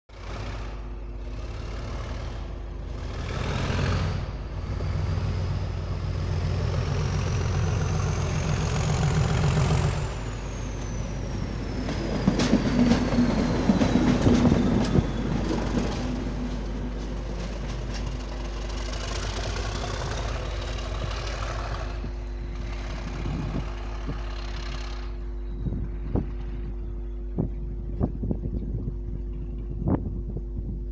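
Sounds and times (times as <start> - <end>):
diesel locomotive engine pulling away: 0.1 - 30.9
rising engine whistle: 19.0 - 27.9.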